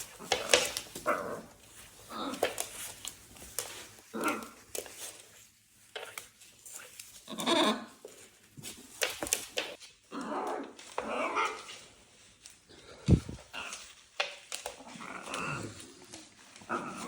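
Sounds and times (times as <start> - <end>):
sharp clicks and scuffling: 8.1 - 9.9.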